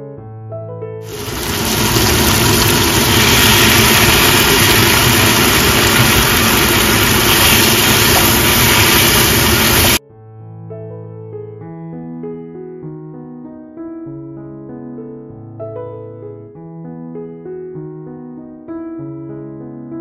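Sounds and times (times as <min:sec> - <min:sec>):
stovetop cooking in a wok: 0:01.0 - 0:10.0.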